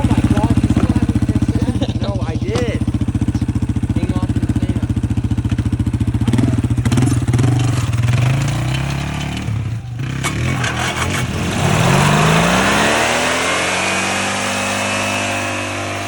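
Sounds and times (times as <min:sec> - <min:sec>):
lawnmower engine running: 0:00.0 - 0:16.0.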